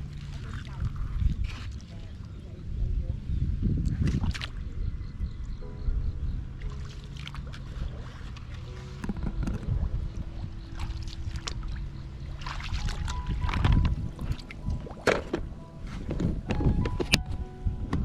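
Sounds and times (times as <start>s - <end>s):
water sloshing and splashing: 0.0s - 2.5s, 3.8s - 4.8s, 6.5s - 17.4s
low rumble: 0.0s - 18.0s.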